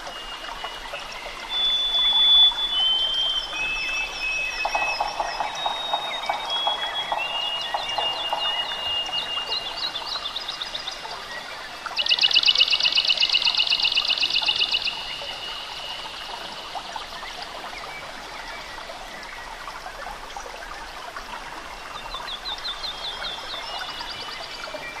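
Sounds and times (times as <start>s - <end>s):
songbirds chirping: 0.0s - 19.9s
bird trill: 1.5s - 10.8s.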